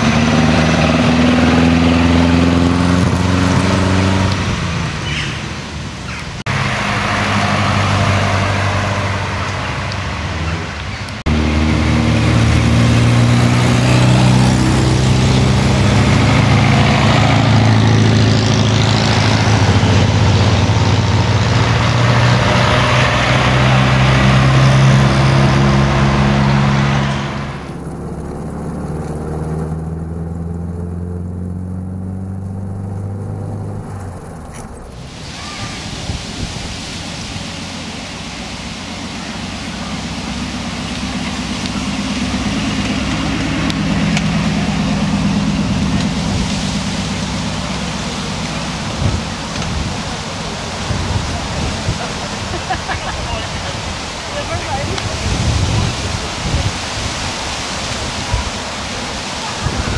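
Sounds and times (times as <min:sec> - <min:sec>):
sports car engines passing: 0:00.0 - 0:59.9.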